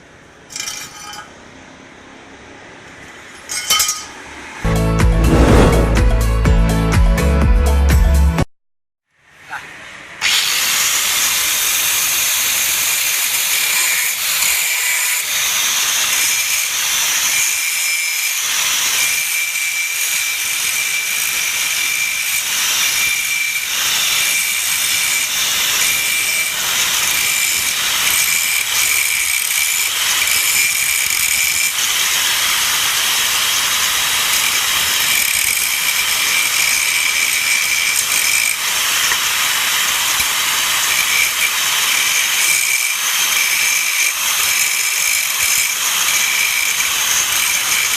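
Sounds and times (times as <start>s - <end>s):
angle grinder grinding: 12.9s - 47.9s.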